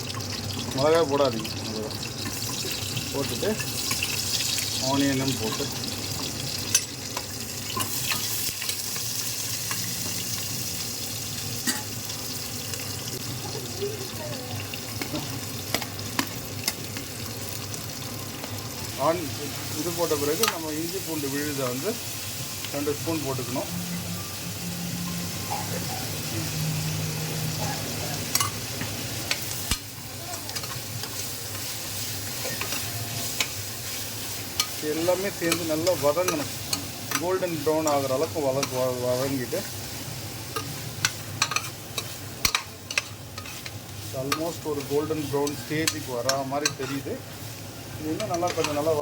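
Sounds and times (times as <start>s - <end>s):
onions sizzling in oil: 0.0s - 49.0s
spoon stirring and clicking on pan: 40.6s - 47.0s.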